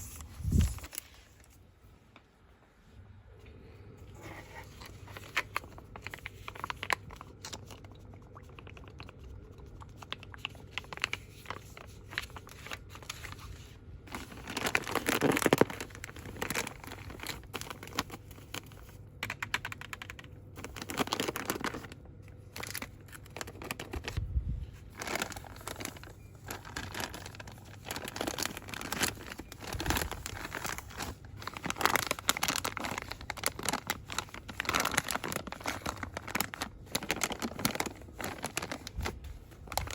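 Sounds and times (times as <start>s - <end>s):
packaging crinkling by hand: 0.0s - 1.6s, 4.2s - 39.9s.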